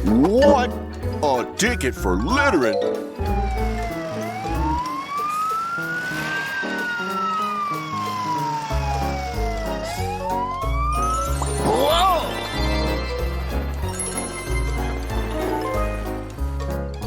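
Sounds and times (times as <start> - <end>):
background music with bass: 0.0 - 4.8
police siren wailing: 1.3 - 12.8.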